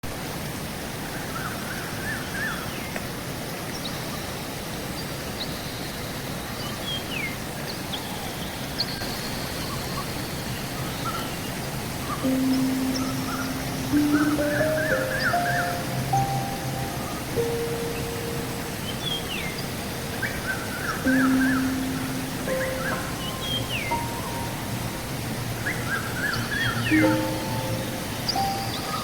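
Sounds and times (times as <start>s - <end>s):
river rushing: 9.0s - 29.0s
birds chirping and whistling: 12.1s - 29.0s
music: 12.2s - 29.0s.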